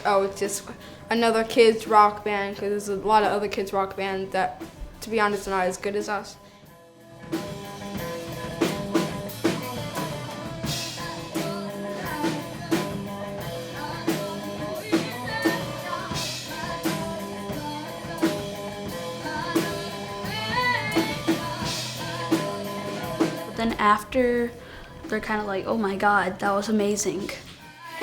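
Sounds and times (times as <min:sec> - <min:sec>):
bass guitar: 0:07.0 - 0:27.6
electric guitar: 0:07.1 - 0:23.6
drum kit beat: 0:07.2 - 0:28.0
person singing: 0:09.4 - 0:28.0.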